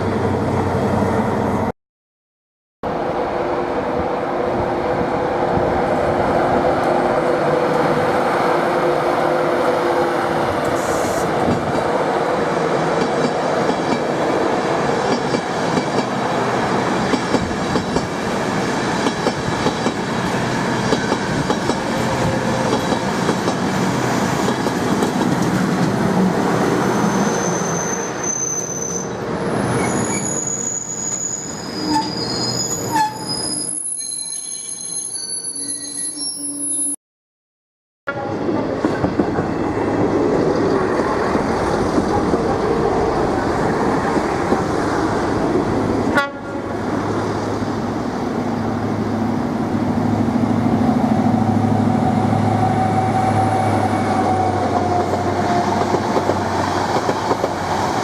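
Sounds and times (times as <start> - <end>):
high-pitched metallic squeals: 26.8 - 37.0
train wheels rumbling: 38.4 - 58.0.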